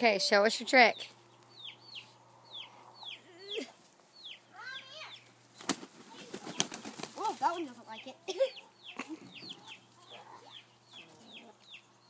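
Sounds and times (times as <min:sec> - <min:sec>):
chickens peeping: 0:00.0 - 0:12.0
wings flapping: 0:05.5 - 0:07.8.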